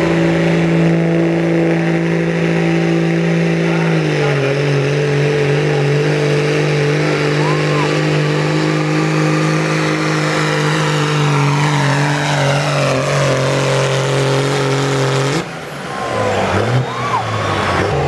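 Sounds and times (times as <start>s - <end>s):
diesel pickup engine at full throttle: 0.0s - 18.0s.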